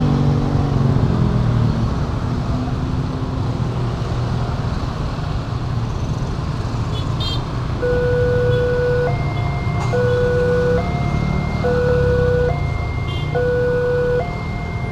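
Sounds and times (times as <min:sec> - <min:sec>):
road traffic passing: 0:00.0 - 0:14.9
two-tone crossing alarm: 0:07.8 - 0:14.9.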